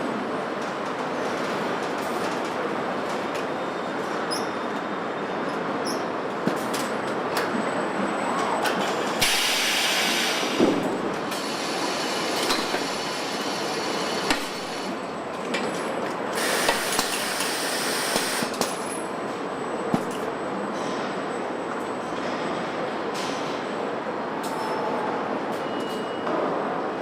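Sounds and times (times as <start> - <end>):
machine clanks and clicks: 15.5 - 17.6.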